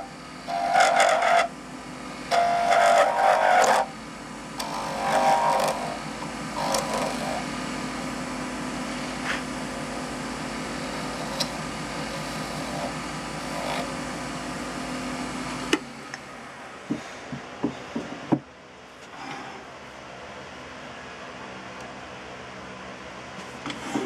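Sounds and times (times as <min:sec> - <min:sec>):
wood lathe motor humming: 0:00.0 - 0:17.7.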